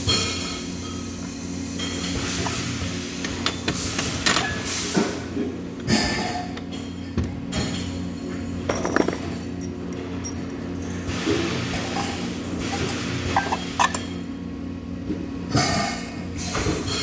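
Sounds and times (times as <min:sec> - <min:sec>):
machinery hum: 0:00.0 - 0:16.8
metal clinks and knocks: 0:08.6 - 0:10.5.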